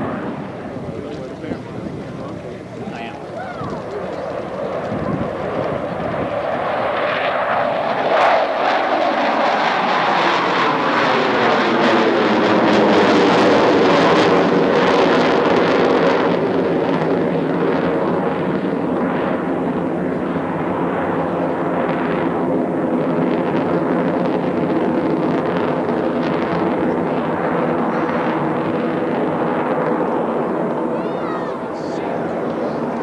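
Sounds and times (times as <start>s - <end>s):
jet aircraft flying overhead: 0.0s - 33.0s.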